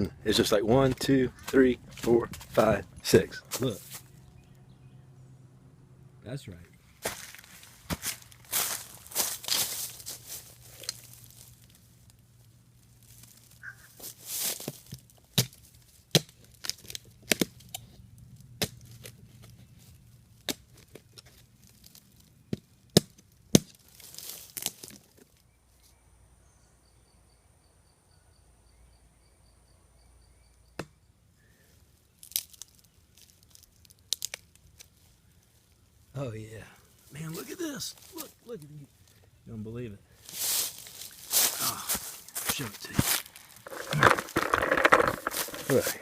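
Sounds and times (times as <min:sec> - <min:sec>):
wood cracking and snapping: 0:14.7 - 0:17.8, 0:32.2 - 0:34.9, 0:41.0 - 0:46.0.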